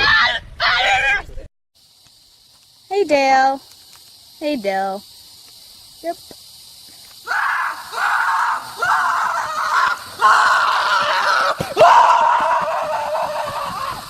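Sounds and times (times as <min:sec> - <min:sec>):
person screaming: 0:07.3 - 0:14.0.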